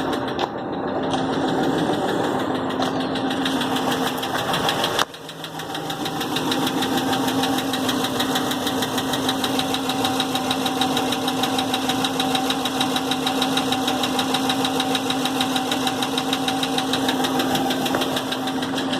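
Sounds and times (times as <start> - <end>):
engine running with knock: 0.0 - 18.9.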